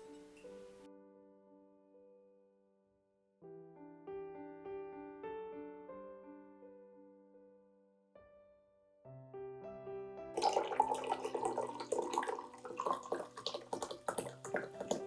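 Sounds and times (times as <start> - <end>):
soft piano music: 0.0 - 15.0
water running and splashing: 10.4 - 15.0.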